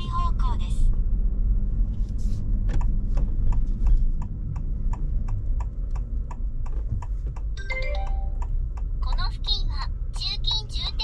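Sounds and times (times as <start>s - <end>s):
car rumble on road: 0.0s - 11.0s
turn signal ticking: 2.5s - 11.0s.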